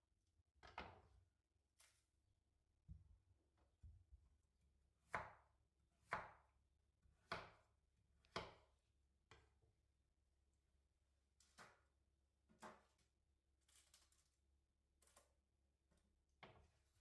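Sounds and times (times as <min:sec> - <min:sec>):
knife chopping on cutting board: 0:06.0 - 0:06.4, 0:07.2 - 0:07.6.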